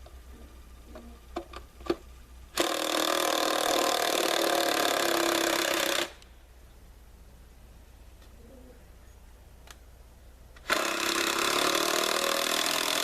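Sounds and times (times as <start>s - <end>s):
power drill running: 2.6s - 6.2s, 10.6s - 13.0s.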